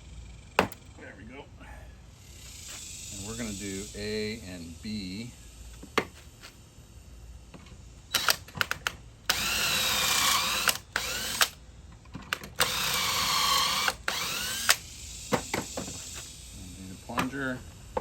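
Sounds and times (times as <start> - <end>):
drill bit clicks: 8.1 - 11.6, 12.3 - 14.8
power drill boring wood: 8.1 - 11.6, 12.4 - 14.8.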